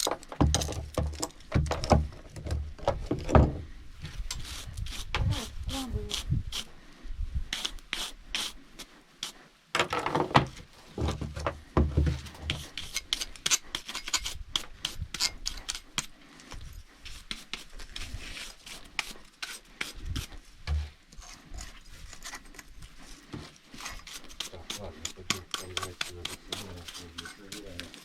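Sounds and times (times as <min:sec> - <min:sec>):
brushing and scraping strokes: 0:04.0 - 0:09.6, 0:11.8 - 0:28.0.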